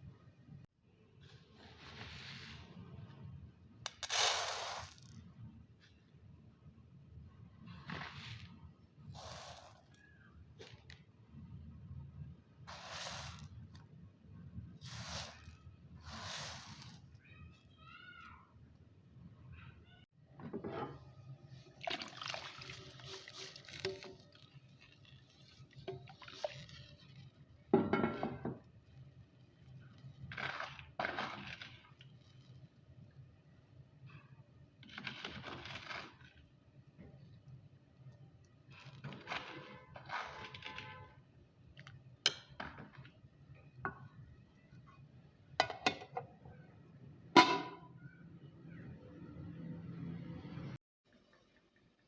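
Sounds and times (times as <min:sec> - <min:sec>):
liquid pouring: 0:21.7 - 0:27.6.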